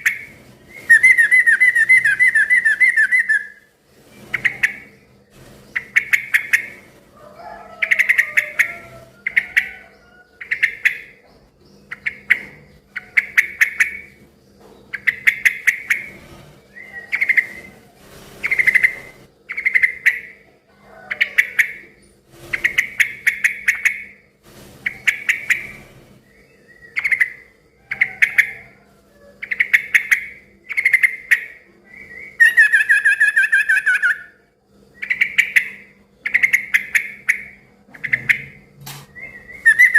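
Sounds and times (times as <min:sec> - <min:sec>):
bird chattering calls: 0:00.0 - 0:03.6, 0:04.3 - 0:05.1, 0:05.7 - 0:06.9, 0:07.6 - 0:11.2, 0:11.8 - 0:14.2, 0:14.8 - 0:16.2, 0:18.4 - 0:24.2, 0:26.6 - 0:28.8, 0:35.0 - 0:39.9.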